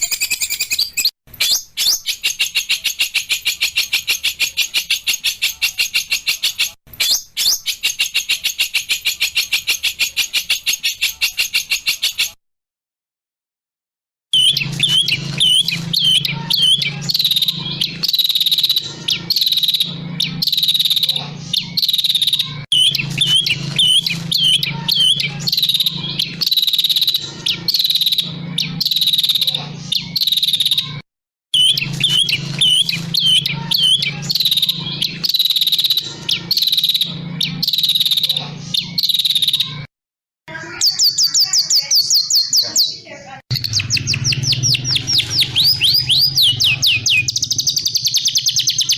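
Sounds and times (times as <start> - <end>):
bird fast rolling trill: 0.0 - 12.3, 14.4 - 31.0, 31.6 - 39.9, 43.5 - 48.9
bird ringing phrase: 14.4 - 31.0, 31.6 - 39.9, 40.6 - 48.9.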